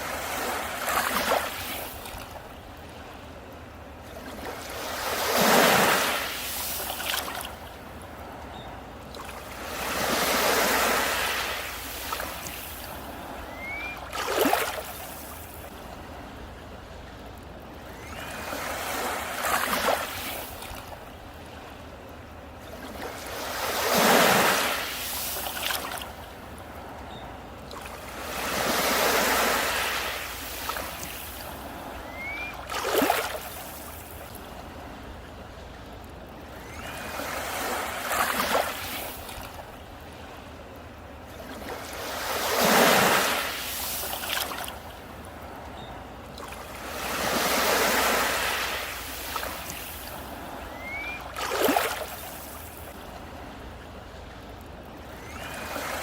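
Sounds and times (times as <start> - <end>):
wave splash: 0.0 - 3.2, 4.0 - 7.9, 9.2 - 16.2, 22.6 - 26.9, 27.7 - 35.1, 36.5 - 40.5, 41.3 - 45.7, 46.4 - 54.4
steady surf wash: 0.0 - 17.1, 17.8 - 27.1, 27.7 - 35.8, 36.4 - 45.7, 46.3 - 54.2, 55.1 - 56.0
sea waves breaking on beach: 0.0 - 56.0.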